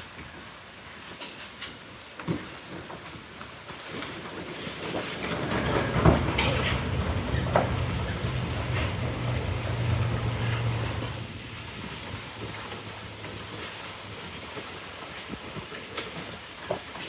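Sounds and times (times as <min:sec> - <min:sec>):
heavy rain hissing: 0:05.0 - 0:15.7
low steady hum: 0:05.5 - 0:13.6.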